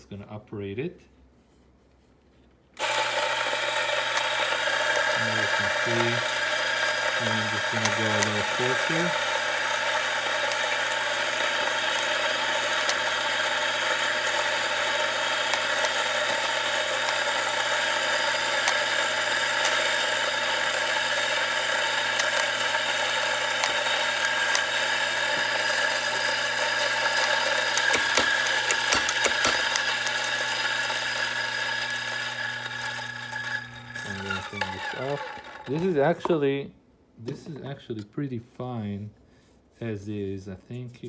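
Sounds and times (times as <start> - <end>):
coffee grinder running: 2.8 - 36.1
sharp clicks: 21.9 - 30.3.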